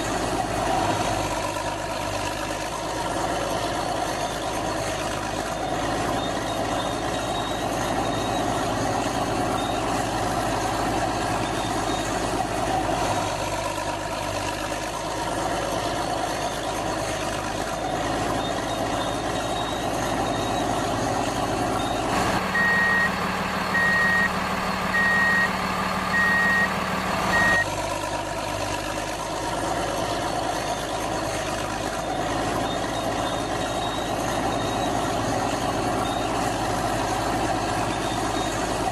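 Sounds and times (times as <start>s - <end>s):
diesel engines running: 0.0s - 38.9s
reversing alarm beeping: 21.7s - 27.7s.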